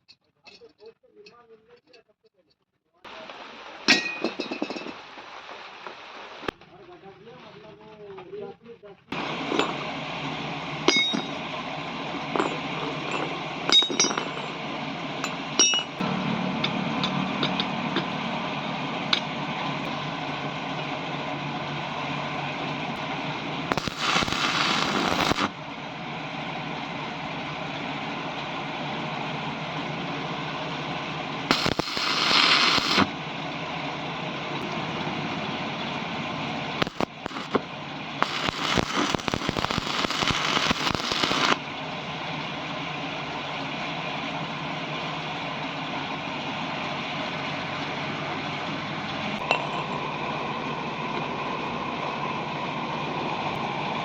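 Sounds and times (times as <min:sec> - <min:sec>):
arc welding crackling hiss: 0:23.7 - 0:25.5, 0:31.5 - 0:33.1, 0:36.8 - 0:37.6, 0:38.2 - 0:41.6.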